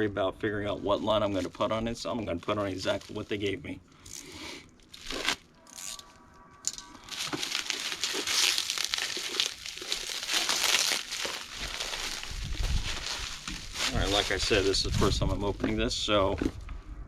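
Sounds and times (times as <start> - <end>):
plastic packaging crinkling: 1.1 - 3.6, 4.8 - 15.6.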